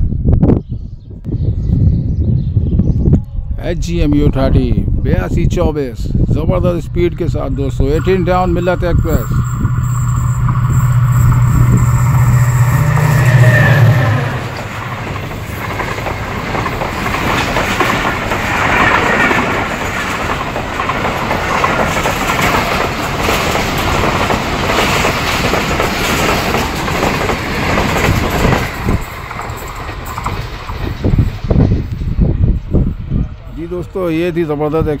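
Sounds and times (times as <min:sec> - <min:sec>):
locomotive engine hum: 0:06.8 - 0:34.8
train wheels clattering over rails: 0:07.7 - 0:32.2.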